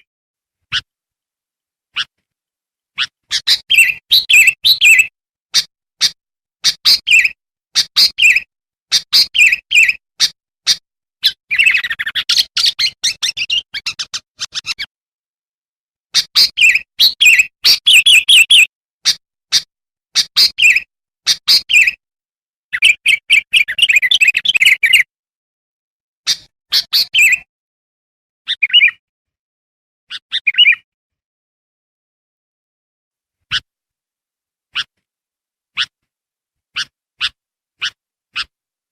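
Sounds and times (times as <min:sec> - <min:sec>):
bird chirping: 0:00.7 - 0:00.9, 0:01.9 - 0:02.2, 0:03.0 - 0:14.9, 0:16.2 - 0:22.0, 0:22.8 - 0:25.1, 0:26.3 - 0:27.5, 0:28.5 - 0:29.0, 0:30.1 - 0:30.8, 0:34.7 - 0:34.9, 0:36.8 - 0:38.5
bird fast chattering: 0:03.0 - 0:14.9, 0:16.2 - 0:22.0.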